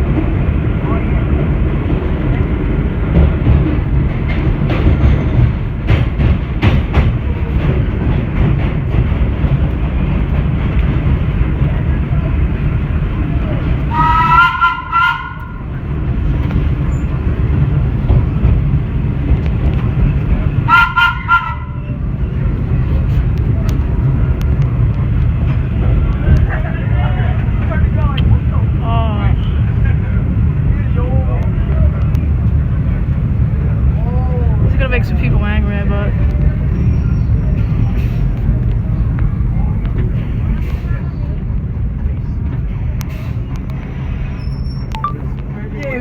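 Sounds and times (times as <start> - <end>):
subway train rumbling on track: 0.0 - 46.0
train horn toot: 13.9 - 15.7, 20.7 - 21.9.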